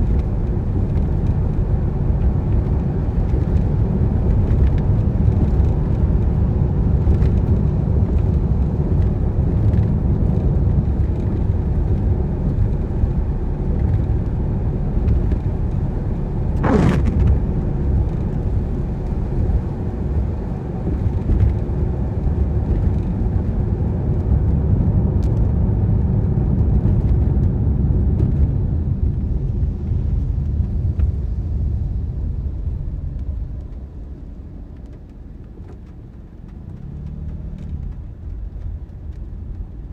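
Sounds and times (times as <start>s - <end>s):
car rumbling on wet road: 0.0s - 39.9s
sharp swish: 16.6s - 17.3s.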